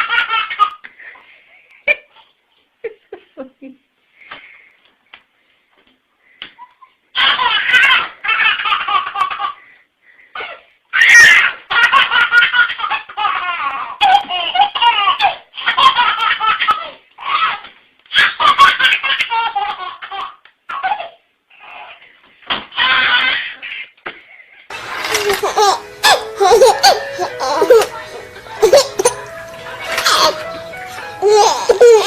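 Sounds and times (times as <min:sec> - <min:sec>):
small child laughing: 0:06.6 - 0:09.6, 0:25.0 - 0:28.0, 0:28.6 - 0:29.2, 0:31.2 - 0:32.0.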